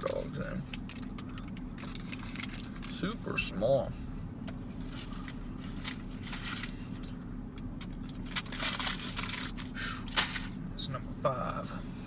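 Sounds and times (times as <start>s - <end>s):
steady low hum: 0.0s - 12.0s
paper wrapper rustling: 0.8s - 2.9s, 8.1s - 10.5s.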